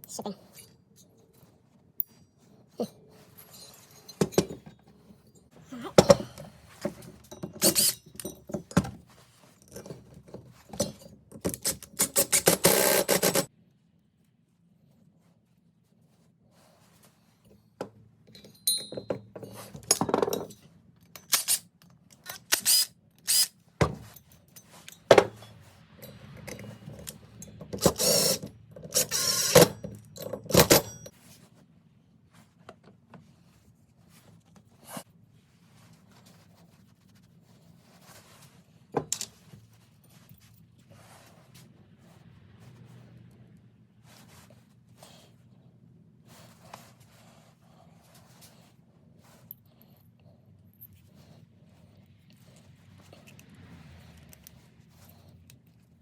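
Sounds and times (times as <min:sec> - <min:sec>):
tools clicking and knocking on metal: 0:03.5 - 0:05.2, 0:05.9 - 0:09.0, 0:09.6 - 0:13.5, 0:17.8 - 0:31.1, 0:39.0 - 0:39.4.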